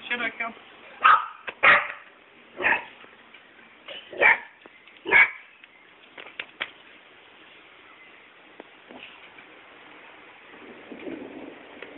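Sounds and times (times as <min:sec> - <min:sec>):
dog barking: 0:01.0 - 0:02.9, 0:03.9 - 0:05.4.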